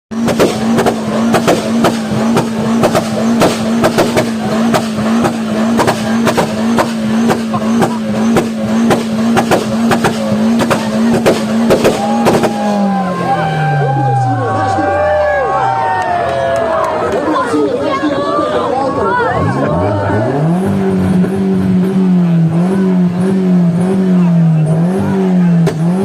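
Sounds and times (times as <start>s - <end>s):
exhaust pops and bangs: 0.1s - 12.9s, 25.5s - 26.0s
car engine at high revs: 0.1s - 15.4s, 18.9s - 26.0s.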